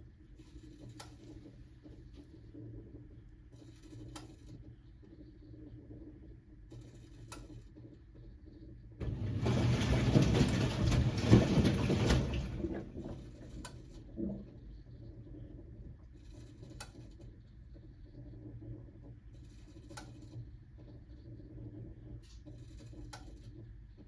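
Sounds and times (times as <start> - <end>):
washing machine hum: 0.0 - 24.0
rush of drum and water: 9.0 - 14.5.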